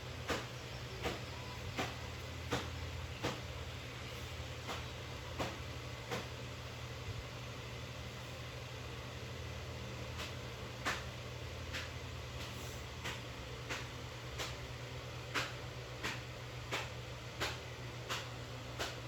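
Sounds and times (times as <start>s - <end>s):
steady low hum: 0.0s - 19.0s
light sharp taps: 0.3s - 3.5s.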